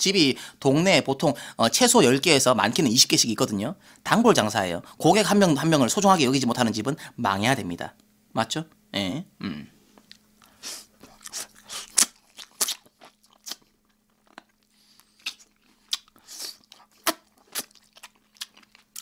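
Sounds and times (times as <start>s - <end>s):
lip-smacking: 10.0s - 19.0s
chewing and biting chicken: 10.4s - 19.0s
crunchy bites: 11.0s - 19.0s.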